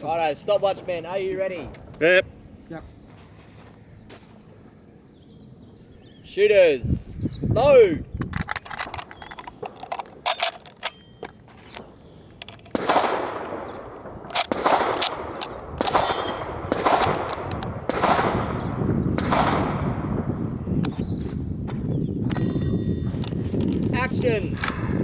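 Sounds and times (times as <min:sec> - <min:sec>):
short metallic rings: 0:10.3 - 0:11.7, 0:15.9 - 0:16.8, 0:22.3 - 0:23.6
rifle shots with echo: 0:12.7 - 0:20.4.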